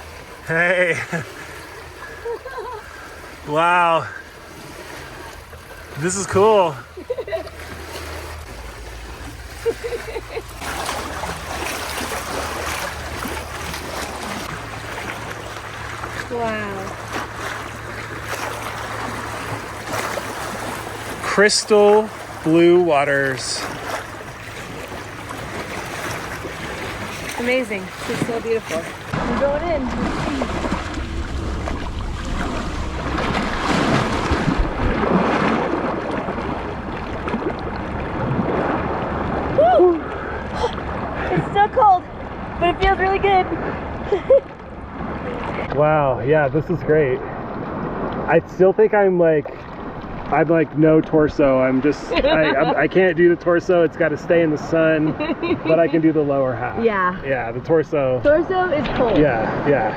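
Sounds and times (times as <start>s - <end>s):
water splashing and lapping: 0.0s - 59.9s
wind buffeting microphone: 24.1s - 45.7s
low rumble: 29.0s - 46.0s.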